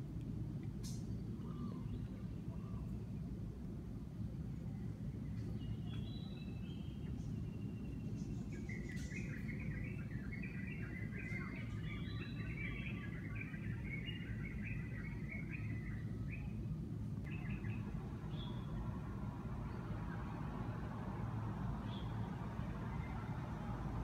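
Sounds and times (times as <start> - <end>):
bird chirping: 5.3 - 16.6, 17.2 - 19.0.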